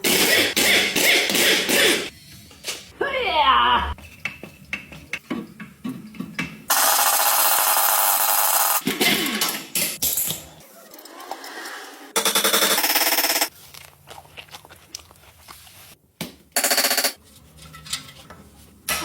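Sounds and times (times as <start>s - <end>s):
impact wrench hammering: 0.0s - 2.1s.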